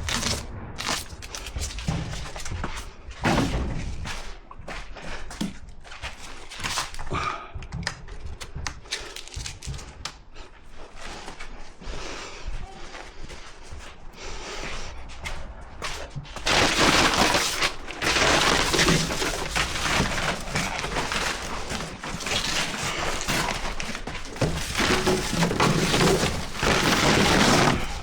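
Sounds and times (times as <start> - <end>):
scraping of building materials: 15.2 - 28.0.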